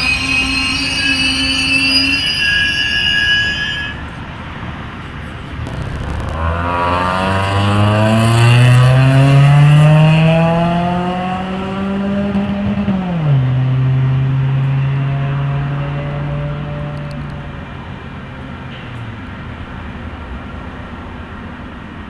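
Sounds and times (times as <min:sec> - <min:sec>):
engine accelerating: 0:05.6 - 0:17.3.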